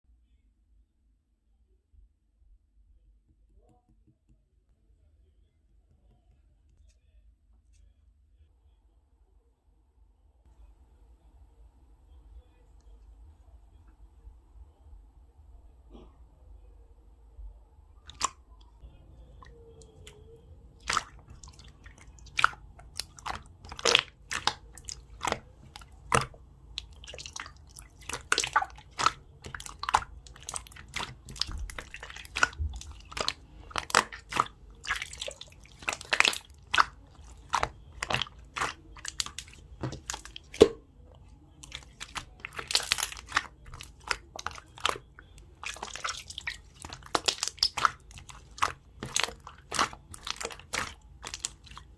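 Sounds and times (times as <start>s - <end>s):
slime popping and clicking: 41.6s - 45.0s, 45.7s - 51.8s.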